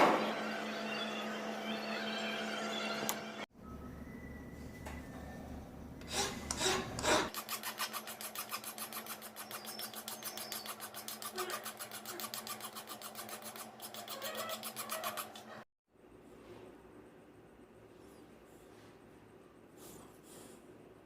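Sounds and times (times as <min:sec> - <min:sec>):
hand file rasping strokes: 0:06.0 - 0:15.6.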